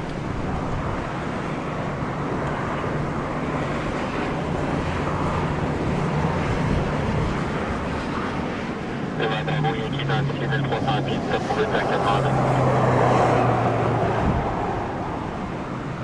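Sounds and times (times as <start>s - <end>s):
aircraft engines rumbling: 0.0s - 16.0s
gusty wind: 0.0s - 16.0s.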